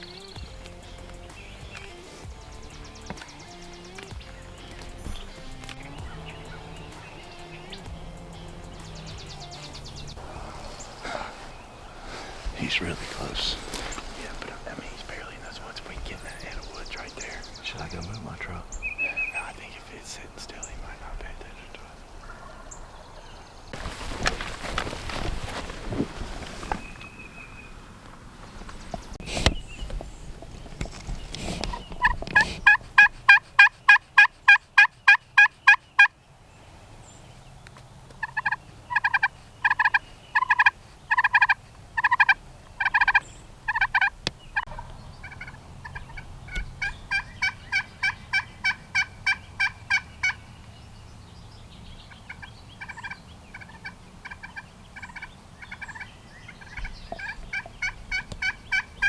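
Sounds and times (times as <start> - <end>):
turkey yelping: 0.0 - 12.5, 22.2 - 23.1, 31.4 - 36.1, 38.2 - 50.5, 52.3 - 59.0.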